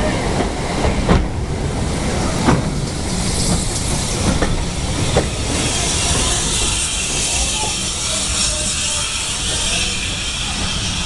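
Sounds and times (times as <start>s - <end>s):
train wheels rumbling on rails: 0.0s - 11.0s
steam hissing: 1.8s - 11.0s.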